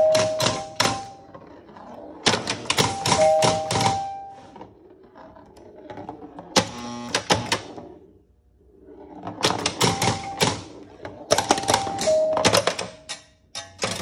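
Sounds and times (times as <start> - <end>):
pinball machine clicking and clacking: 0.0 - 1.3, 2.2 - 4.3, 9.2 - 14.0.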